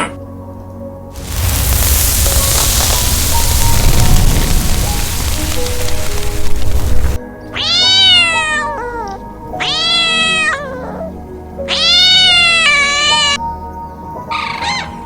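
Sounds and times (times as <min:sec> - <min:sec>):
background music: 0:00.0 - 0:15.0
hissing noise: 0:01.2 - 0:07.2
cat meowing: 0:07.6 - 0:11.1, 0:11.7 - 0:13.4.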